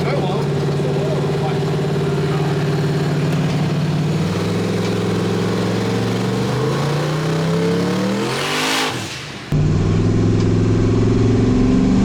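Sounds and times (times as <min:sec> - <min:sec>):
pickup truck engine revving: 0:00.0 - 0:12.0.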